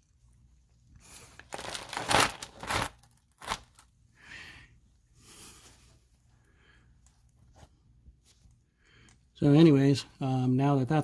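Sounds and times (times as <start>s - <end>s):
rustling and crinkling: 0.0s - 4.1s.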